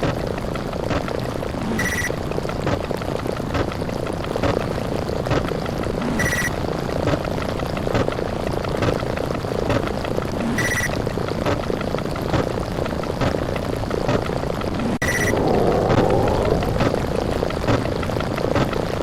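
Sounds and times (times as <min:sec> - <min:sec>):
overlapping sound effects rumble: 0:14.7 - 0:18.7.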